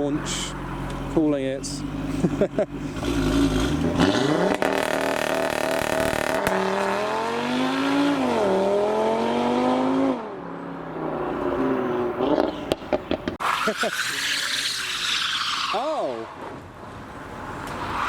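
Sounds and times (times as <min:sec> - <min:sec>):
car engine accelerating hard: 0:00.1 - 0:10.3.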